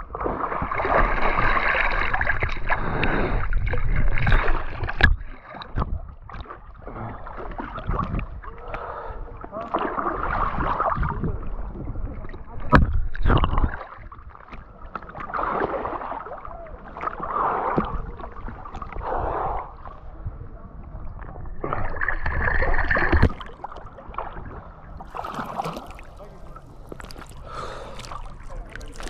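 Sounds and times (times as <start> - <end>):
water splashing around kayak: 0.0 - 29.0
deep water rushes: 21.6 - 29.0.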